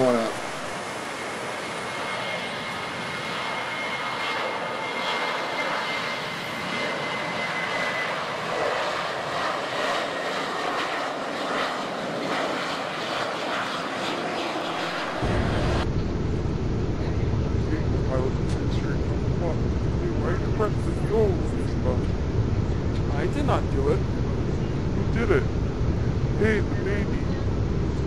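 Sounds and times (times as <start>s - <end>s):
high jet engine whine: 0.0s - 28.0s
jet engines rushing: 0.0s - 28.0s.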